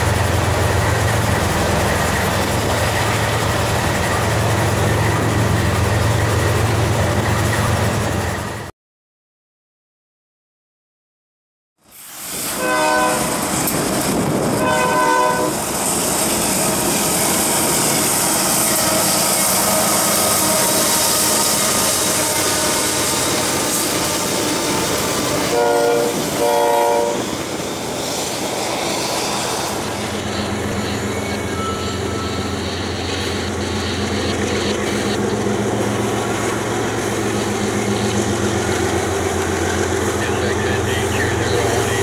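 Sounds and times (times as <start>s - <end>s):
freight train rolling past: 0.0s - 8.7s, 11.9s - 42.0s
locomotive horn: 12.5s - 13.4s, 14.5s - 15.6s, 18.2s - 27.4s.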